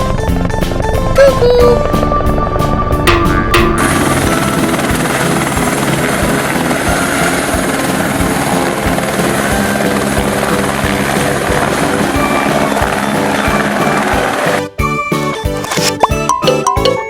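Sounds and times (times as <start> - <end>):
helicopter rotor chop: 1.8 - 14.7.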